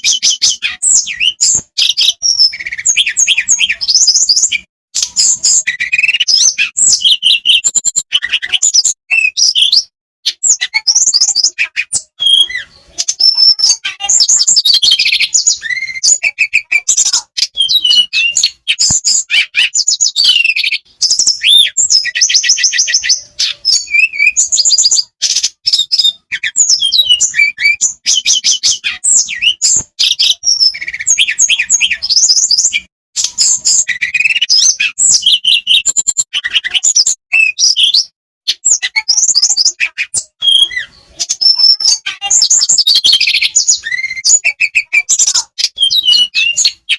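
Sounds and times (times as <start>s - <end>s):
songbird singing chirps and trills: 0.0s - 46.9s.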